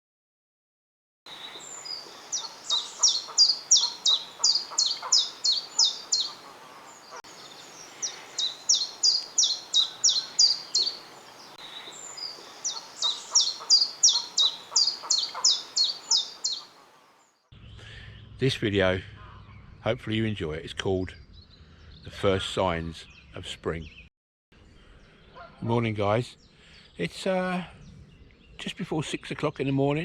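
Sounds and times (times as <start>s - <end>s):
small songbird singing: 1.3s - 18.5s, 21.0s - 22.2s, 23.0s - 25.5s.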